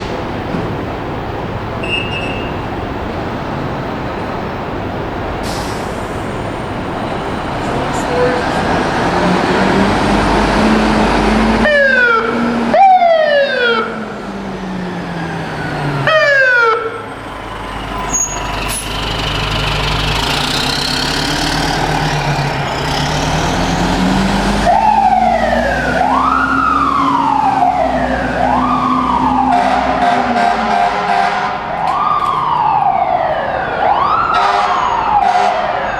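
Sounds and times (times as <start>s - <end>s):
fire engine running: 0.0s - 35.9s.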